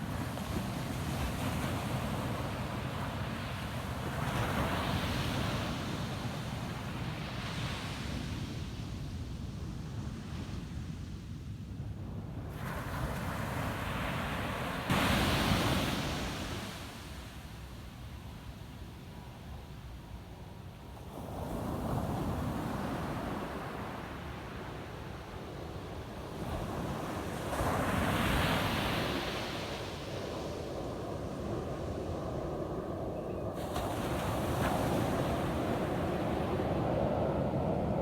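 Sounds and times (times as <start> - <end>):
ocean waves washing onto beach: 12.5 - 17.9, 21.1 - 38.0.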